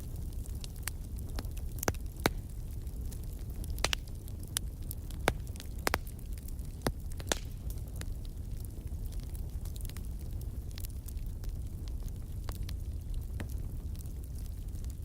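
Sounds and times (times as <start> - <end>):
fire crackling in a fireplace: 0.0 - 15.0.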